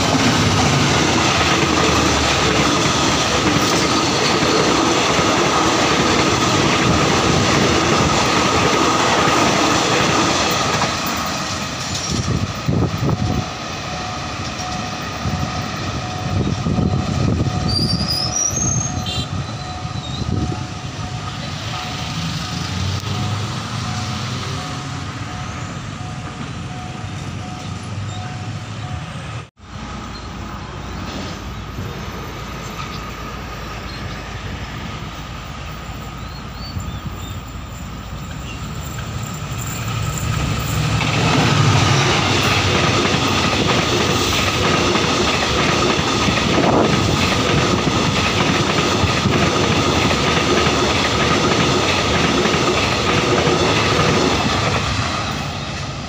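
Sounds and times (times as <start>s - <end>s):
wheels clacking over rail joints: 0.0s - 19.0s, 38.1s - 56.0s
passenger train passing: 0.0s - 56.0s
motorbikes passing: 21.8s - 25.2s.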